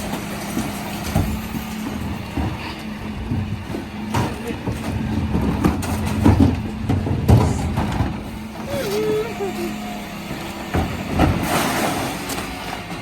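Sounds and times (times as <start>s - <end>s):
refuse truck humming: 0.0s - 13.0s.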